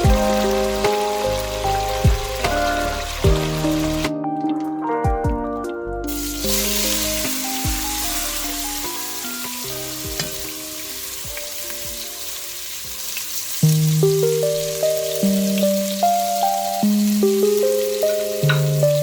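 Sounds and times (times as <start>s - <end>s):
food sizzling in a frying pan: 0.0s - 4.1s, 6.1s - 19.0s
background music: 0.0s - 19.0s.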